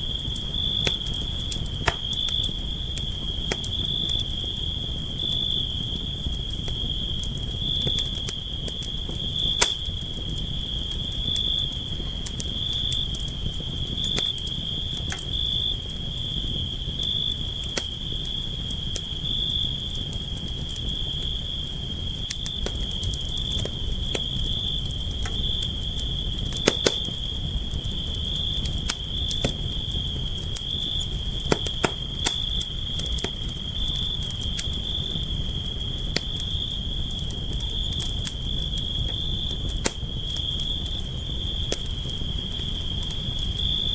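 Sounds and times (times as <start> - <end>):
campfire crackling and popping: 0.0 - 43.9
high insect trill: 20.8 - 43.9.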